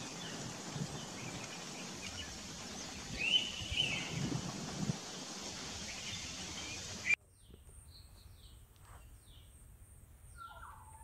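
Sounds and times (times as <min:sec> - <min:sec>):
steady outdoor hiss: 0:00.0 - 0:11.0
bird whistled call: 0:03.1 - 0:04.1, 0:10.4 - 0:11.0.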